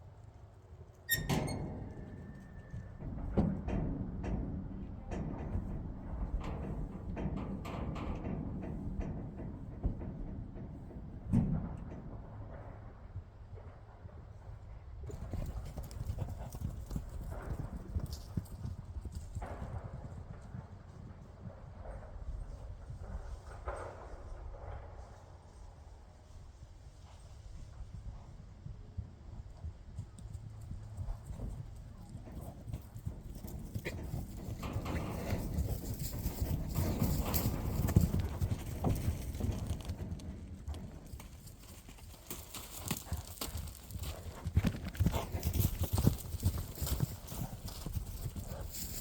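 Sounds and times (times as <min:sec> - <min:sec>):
horses galloping hoofbeats: 0:01.9 - 0:49.0.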